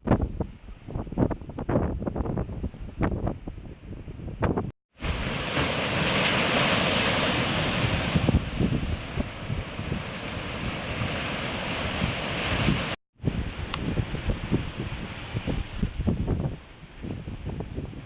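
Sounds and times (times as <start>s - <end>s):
wind buffeting microphone: 0.0s - 5.3s, 7.3s - 18.0s
ocean surf breaking: 5.0s - 17.3s.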